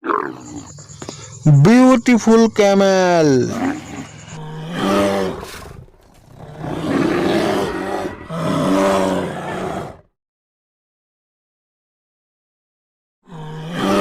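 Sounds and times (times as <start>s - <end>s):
camel bellowing: 0.0s - 10.0s, 13.3s - 14.0s.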